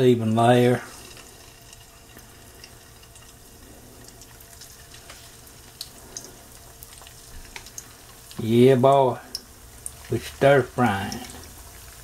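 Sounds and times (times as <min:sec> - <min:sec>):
chicken frying in oil: 0:00.0 - 0:12.0
faint steady hum: 0:00.0 - 0:12.0
small pops and ticks: 0:04.0 - 0:08.4.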